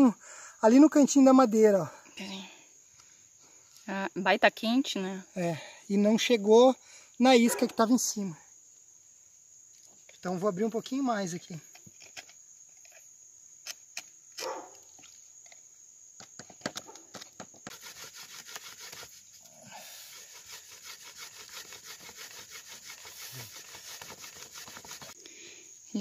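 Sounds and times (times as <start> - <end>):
bamboo scraping against bamboo: 11.6 - 15.2, 17.1 - 25.2.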